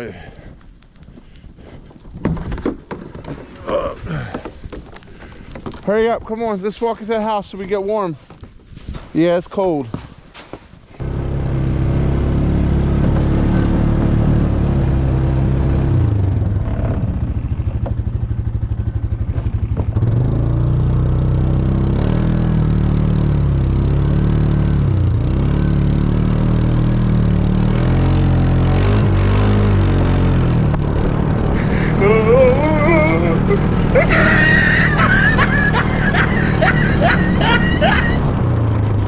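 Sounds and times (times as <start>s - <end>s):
atv engine revving: 11.0s - 39.0s.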